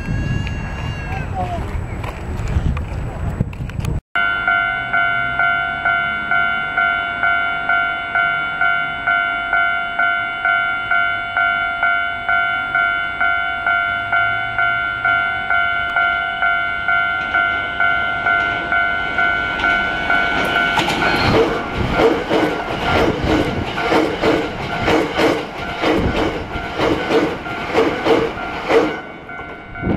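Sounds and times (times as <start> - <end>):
level-crossing bell dinging: 4.2 - 23.2, 24.6 - 29.9
train wheels clattering over rails: 17.2 - 29.6.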